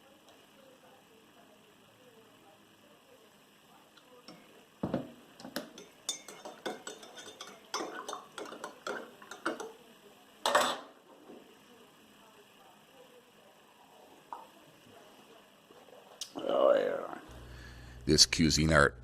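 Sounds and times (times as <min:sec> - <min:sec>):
spoon clinking against cup: 0:05.6 - 0:09.7.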